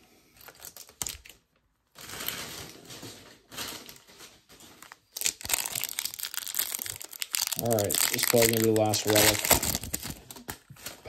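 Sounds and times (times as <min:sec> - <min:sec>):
foil wrapper crinkling: 0:00.4 - 0:11.0.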